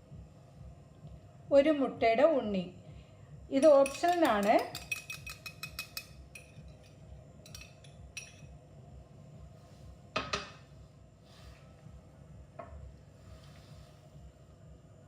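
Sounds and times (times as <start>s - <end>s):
utensil clinking against bowl: 3.6s - 8.5s.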